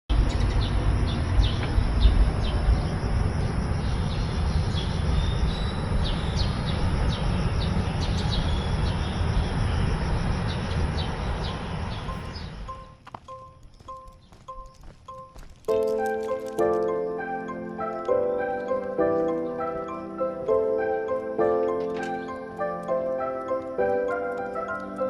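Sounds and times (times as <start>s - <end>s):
heavy low rumble: 0.1s - 13.0s
high insect-like whine: 0.1s - 13.0s
birds chirping: 0.1s - 25.0s.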